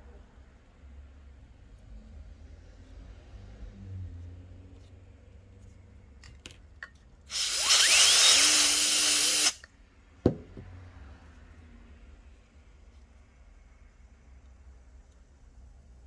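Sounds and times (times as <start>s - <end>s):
air duster hissing: 7.3s - 9.6s.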